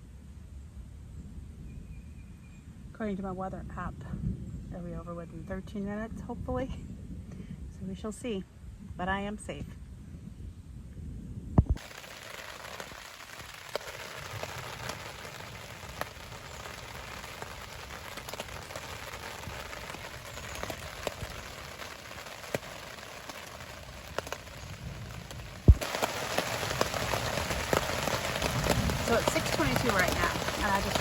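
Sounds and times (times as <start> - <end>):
steady rain falling: 11.8 - 31.0.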